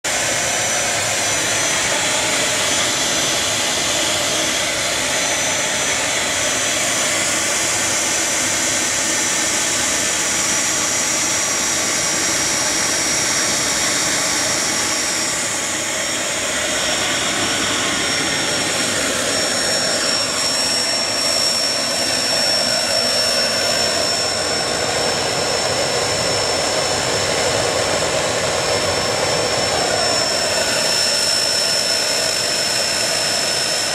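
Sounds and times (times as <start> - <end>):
turbojet engine roaring and whining: 0.0 - 33.9.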